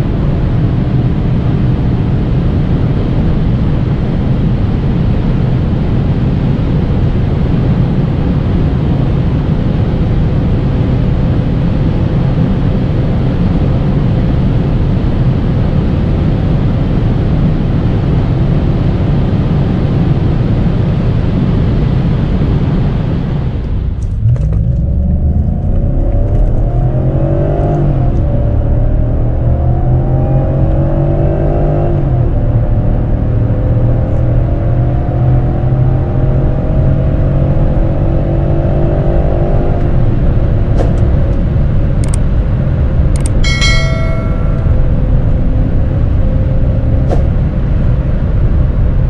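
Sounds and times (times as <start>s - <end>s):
wind and road noise: 0.0s - 49.0s
car engine accelerating hard: 24.0s - 42.0s.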